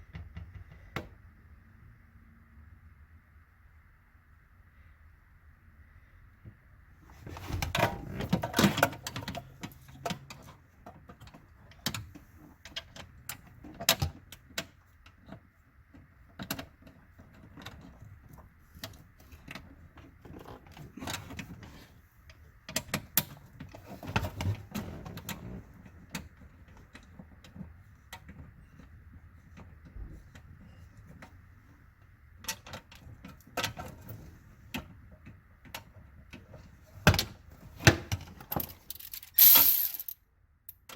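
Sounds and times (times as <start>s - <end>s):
hand tools clattering: 38.5s - 40.2s.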